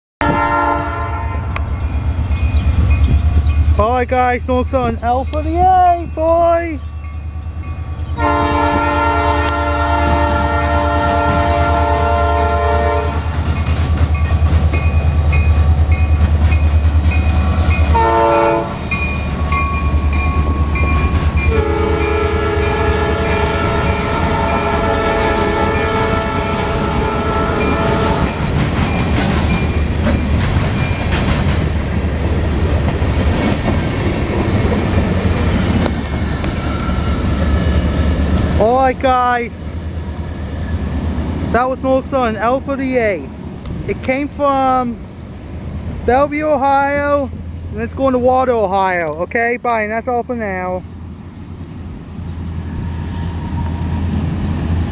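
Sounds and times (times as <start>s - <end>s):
locomotive air horn blasts: 0.2s - 1.6s, 8.2s - 13.3s, 17.9s - 18.8s, 21.4s - 28.4s
train cars rolling by: 0.2s - 54.9s
locomotive engine rumble: 0.3s - 54.9s.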